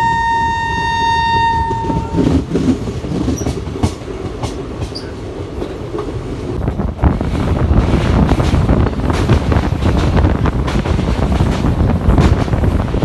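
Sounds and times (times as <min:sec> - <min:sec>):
train horn: 0:00.0 - 0:02.4
train rumbling and clattering: 0:00.0 - 0:13.0.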